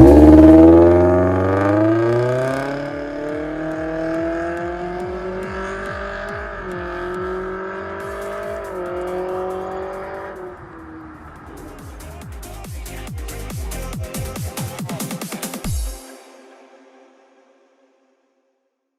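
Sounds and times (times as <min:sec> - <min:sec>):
car engine accelerating: 0:00.0 - 0:13.8.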